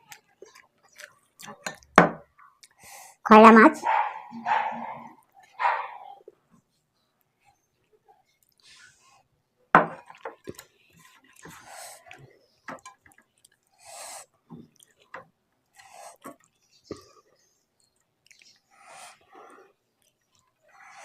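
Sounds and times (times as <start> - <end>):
wet chewing and lip smacks: 0.0 - 2.8, 8.2 - 8.7, 10.0 - 19.4, 20.0 - 21.0.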